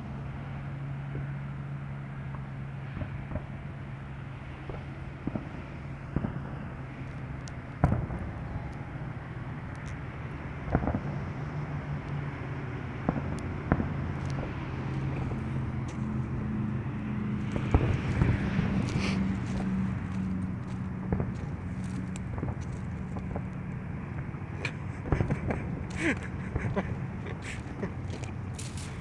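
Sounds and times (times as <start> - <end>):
distant fireworks bangs: 4.6 - 9.0, 10.6 - 11.2, 13.0 - 28.0.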